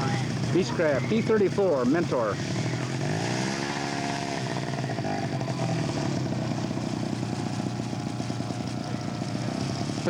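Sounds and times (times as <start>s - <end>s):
model airplane engine running: 0.0s - 10.0s.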